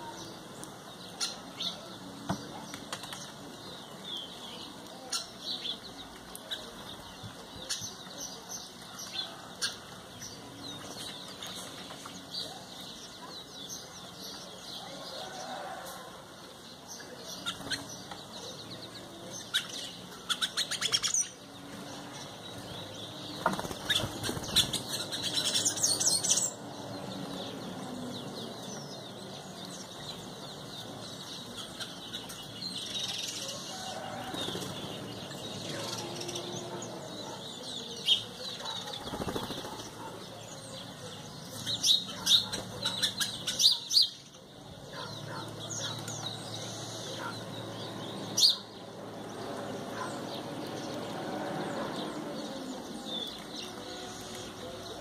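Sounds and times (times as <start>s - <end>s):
birds chirping: 0.0s - 55.0s
bird wings fluttering: 23.4s - 24.8s, 39.0s - 40.0s.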